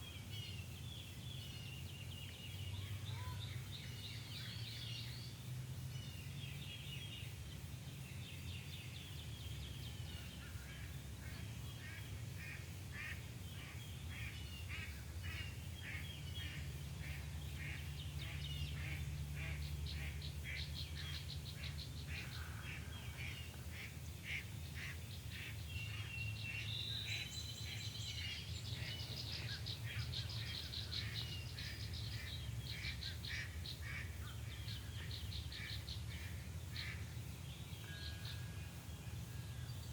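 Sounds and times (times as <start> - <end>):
wild birds calling: 0.0 - 39.9.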